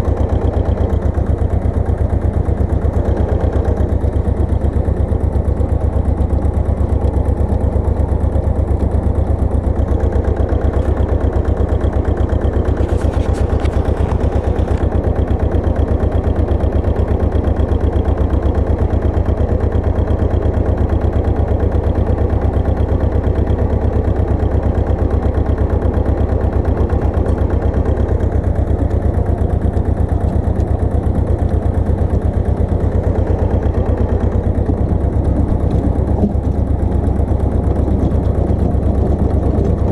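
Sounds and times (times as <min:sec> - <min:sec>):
two-wheel tractor engine running: 0:00.0 - 0:39.9.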